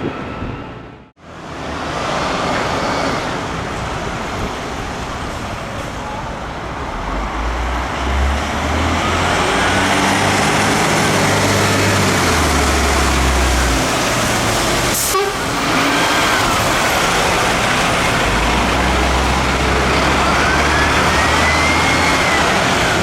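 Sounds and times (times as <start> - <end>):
heavy vehicle engine rumbling: 0.0 - 23.0
street traffic noise: 0.0 - 23.0.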